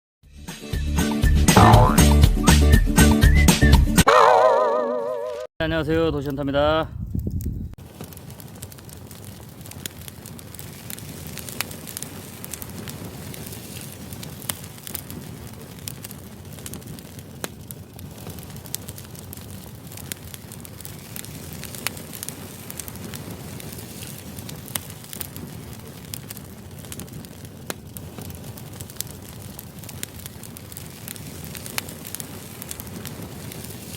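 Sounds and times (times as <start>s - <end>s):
firewood crackling and popping: 7.1s - 33.9s.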